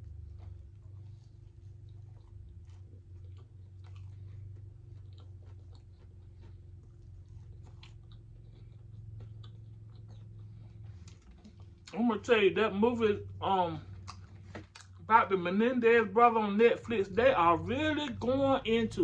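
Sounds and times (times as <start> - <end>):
person chewing food: 0.0 - 12.3, 13.2 - 15.6
steady low hum: 0.0 - 19.0.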